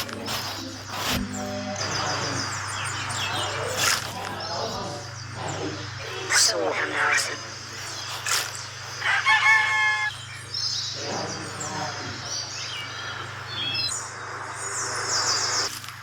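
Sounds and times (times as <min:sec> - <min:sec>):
bird-like chirping: 0:01.8 - 0:15.7.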